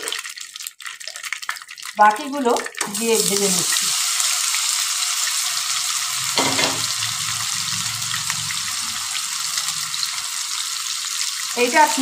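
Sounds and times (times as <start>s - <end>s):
cheese sizzling in oil: 0.0s - 12.0s
knock: 6.4s - 6.9s.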